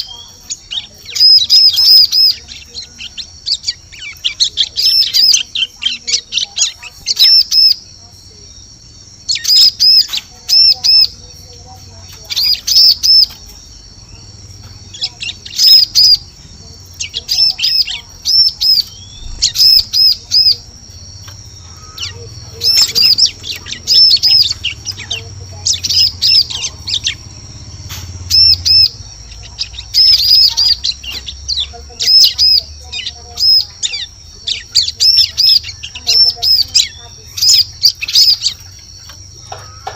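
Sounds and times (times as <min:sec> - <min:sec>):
bird chirping sharply: 0:00.0 - 0:39.9
steady high tone: 0:13.2 - 0:31.0.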